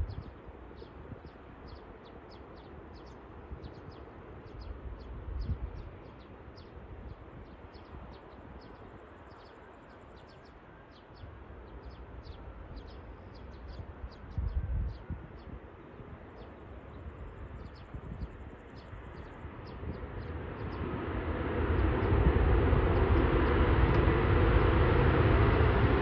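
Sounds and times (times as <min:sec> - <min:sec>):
wind gusting on microphone: 0:00.0 - 0:02.0, 0:03.2 - 0:09.2, 0:11.3 - 0:26.0
birds chirping: 0:16.4 - 0:21.1.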